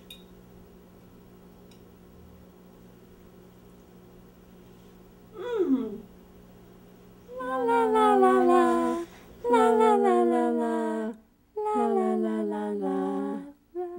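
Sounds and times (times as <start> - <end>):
woman humming: 5.3 - 6.2, 7.3 - 13.9.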